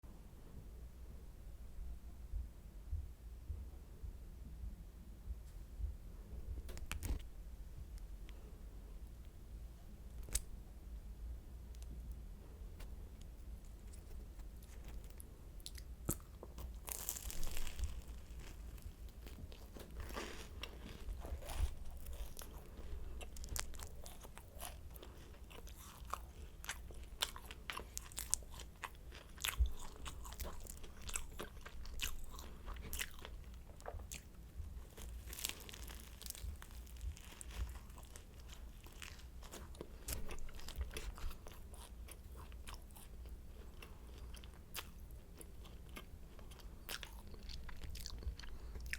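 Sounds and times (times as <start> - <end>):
crunching croissant: 12.8 - 48.9.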